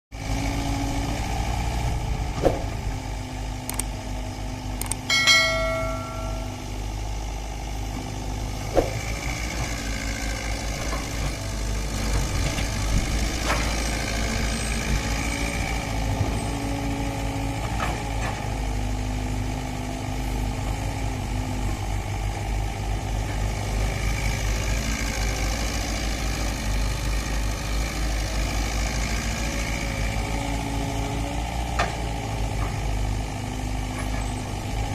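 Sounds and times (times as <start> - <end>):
diesel engines under load: 0.2 - 34.9
ringing metal clang: 5.1 - 6.7.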